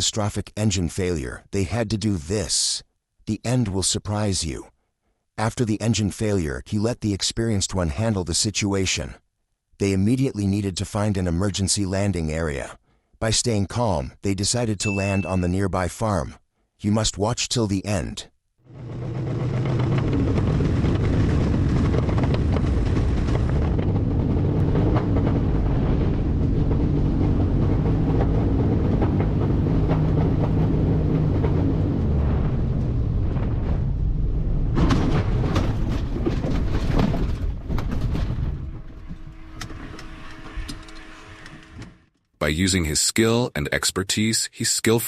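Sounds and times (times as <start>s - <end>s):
clatter and knocks: 18.7s - 31.9s, 34.7s - 41.8s
aircraft heavy rumble with rattling: 18.7s - 34.1s.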